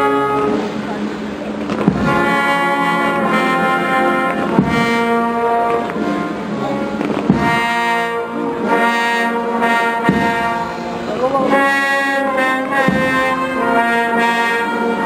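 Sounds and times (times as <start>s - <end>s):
brass band playing a funeral march: 0.0s - 15.0s
bass drum strikes: 1.7s - 2.5s, 4.5s - 5.2s, 7.0s - 7.8s, 10.0s - 10.7s, 12.8s - 13.4s.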